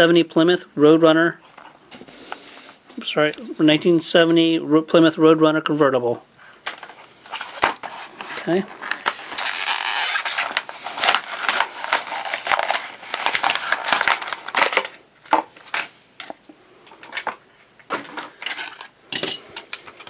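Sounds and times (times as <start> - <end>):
plastic packaging crackling: 6.6 - 18.9
clicks and rustles of handling: 6.6 - 20.0.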